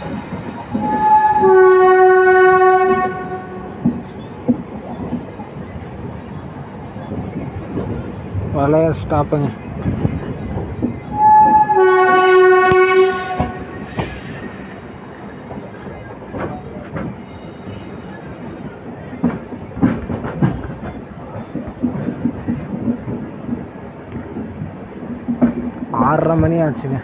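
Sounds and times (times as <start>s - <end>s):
wheels clacking over rail joints: 0.0s - 26.3s
train horn: 0.6s - 3.8s, 11.1s - 14.9s.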